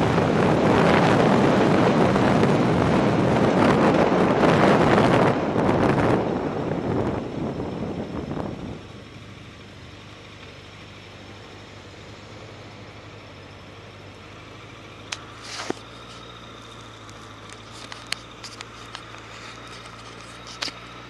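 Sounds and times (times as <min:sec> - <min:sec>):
wind rush on microphone: 0:00.0 - 0:09.2
motorcycle engine idling: 0:06.6 - 0:21.0.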